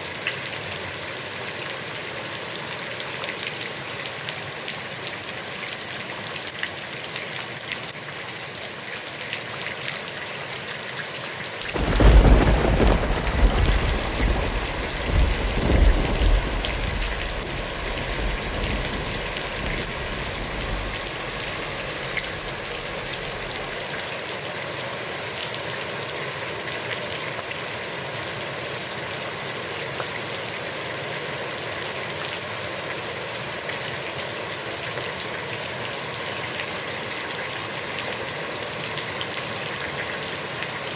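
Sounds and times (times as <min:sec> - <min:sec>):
heavy rain on a pond: 0:00.0 - 0:40.9
thunder rolling: 0:11.6 - 0:23.9.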